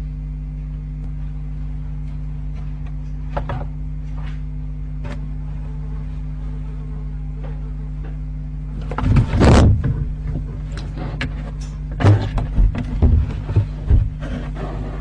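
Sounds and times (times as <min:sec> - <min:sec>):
low electrical hum: 0:00.0 - 0:15.0
scuffs and knocks inside box: 0:12.0 - 0:15.0.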